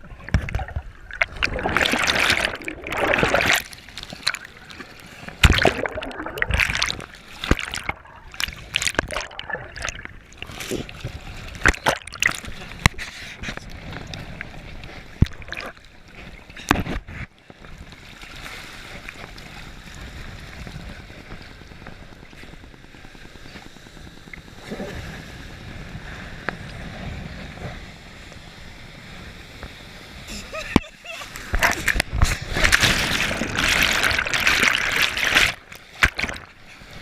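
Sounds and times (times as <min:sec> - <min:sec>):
sharp water slaps: 0:05.4 - 0:07.9, 0:33.6 - 0:36.5.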